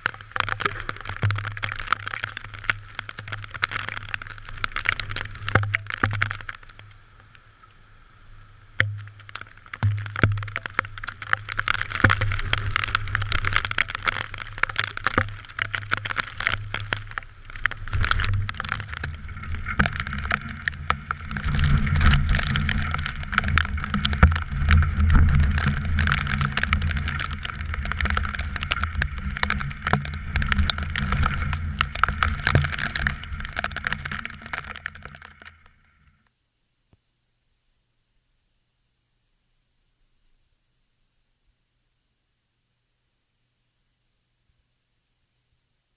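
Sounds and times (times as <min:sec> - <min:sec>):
raindrops pattering: 0:00.0 - 0:37.1.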